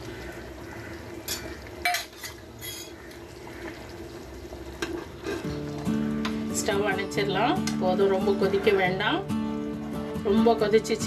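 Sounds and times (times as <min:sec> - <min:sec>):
ladle scraping and clinking on pan: 0:01.3 - 0:03.0, 0:04.8 - 0:05.6.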